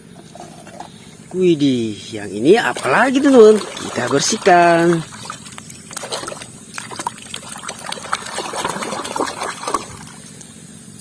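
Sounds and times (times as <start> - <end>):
water trickling and splashing: 2.1 - 10.5.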